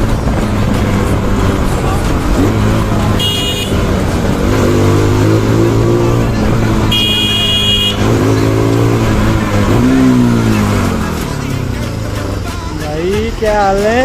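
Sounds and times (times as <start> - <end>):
motorcycle engine accelerating: 0.0 - 13.5
horn beeping: 2.4 - 10.7.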